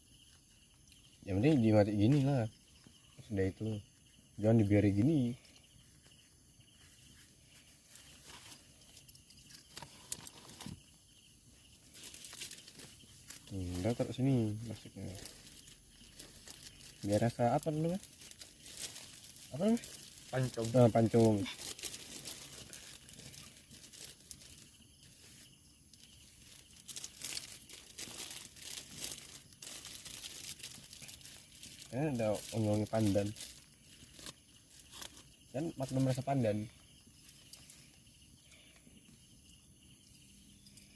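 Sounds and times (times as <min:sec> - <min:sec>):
night insects chirring: 0:00.0 - 0:40.9
rustle of things being handled: 0:00.0 - 0:40.9
plastic packaging crinkling: 0:09.4 - 0:10.8, 0:11.9 - 0:14.1, 0:15.0 - 0:25.2, 0:26.1 - 0:35.3.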